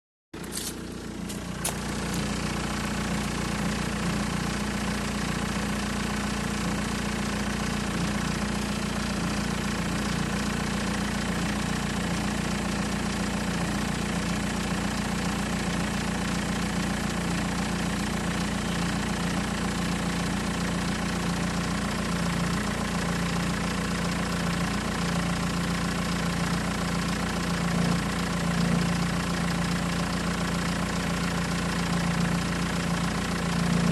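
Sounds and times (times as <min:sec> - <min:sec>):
engine idling with rattle: 0:00.4 - 0:33.9.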